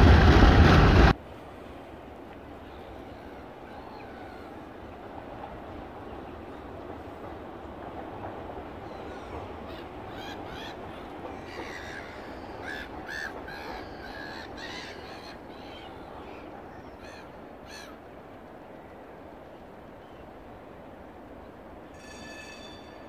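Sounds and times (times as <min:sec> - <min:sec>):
birds calling: 0:08.6 - 0:18.0.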